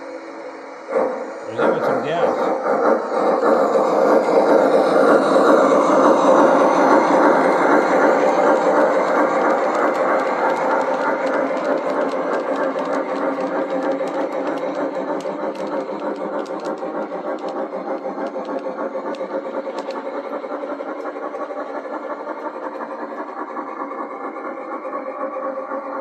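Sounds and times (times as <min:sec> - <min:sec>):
model steam locomotive chuffing: 0:00.0 - 0:26.0
model train wheels rumbling: 0:00.0 - 0:26.0
sharp clicks: 0:08.3 - 0:20.3.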